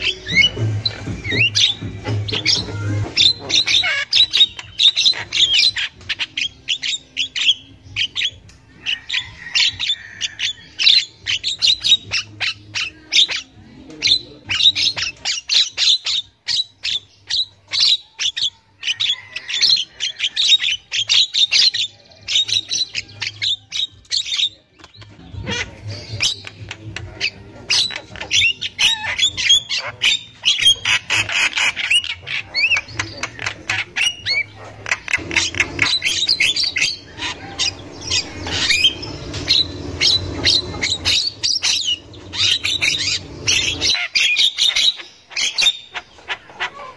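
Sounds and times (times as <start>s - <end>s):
myna chattering call: 24.8s - 46.9s.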